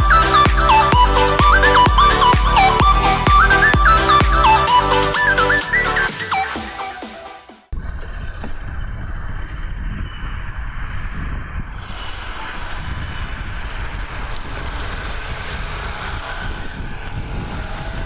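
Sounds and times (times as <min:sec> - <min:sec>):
music: 0:00.0 - 0:07.7
vehicle rumble: 0:07.7 - 0:18.0
wind on microphone: 0:07.7 - 0:18.0.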